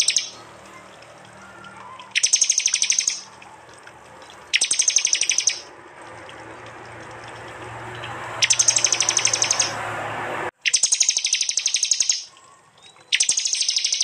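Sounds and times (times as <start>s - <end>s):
bird giving rapid sharp calls: 0.0s - 3.5s, 4.2s - 5.7s, 8.4s - 9.9s, 10.6s - 12.4s, 13.1s - 14.0s.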